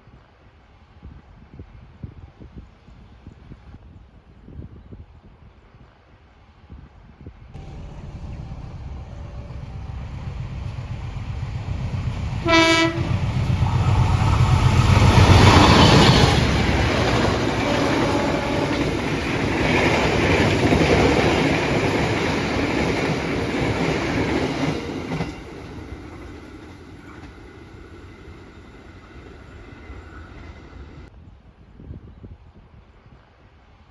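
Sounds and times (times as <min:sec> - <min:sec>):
train wheels rumbling on rails: 0:07.6 - 0:31.1.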